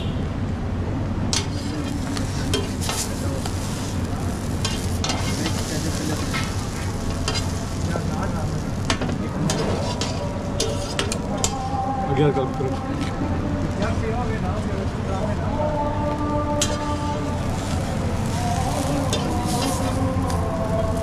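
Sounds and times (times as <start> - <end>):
food sizzling on a griddle: 1.4 - 21.0
metal spatula scraping pan: 9.5 - 11.2.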